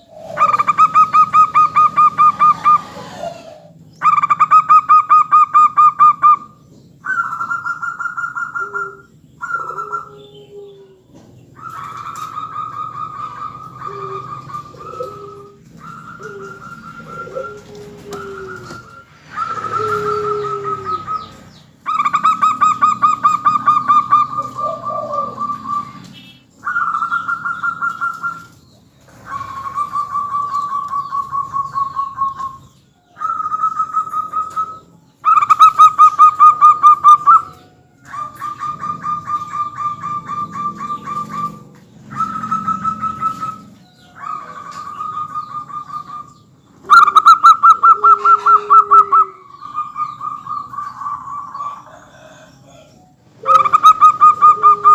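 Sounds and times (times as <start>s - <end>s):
doves cooing: 0.0s - 54.9s.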